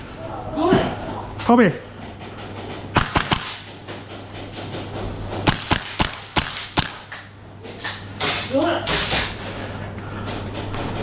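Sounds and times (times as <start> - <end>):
airsoft gun shots: 3.0 - 3.7, 5.4 - 7.1.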